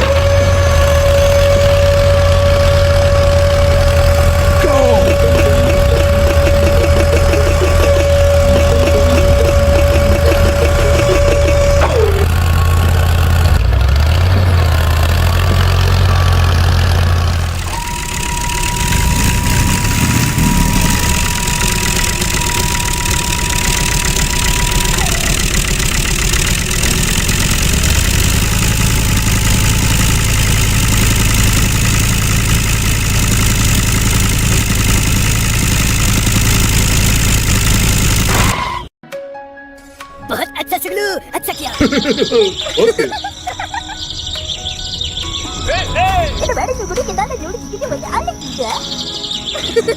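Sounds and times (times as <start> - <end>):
tractor engine running: 0.0 - 38.9, 41.7 - 49.9
steady high whine: 0.9 - 13.6, 17.5 - 30.9.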